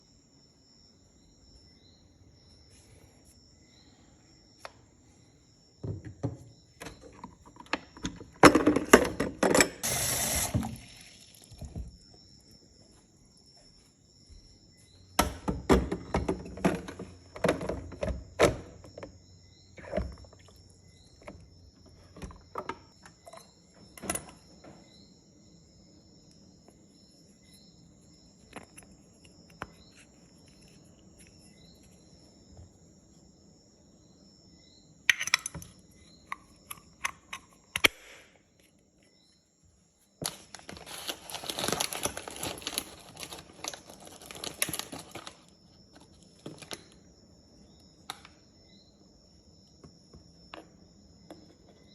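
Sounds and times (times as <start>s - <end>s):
crickets chirring: 0.0s - 51.9s.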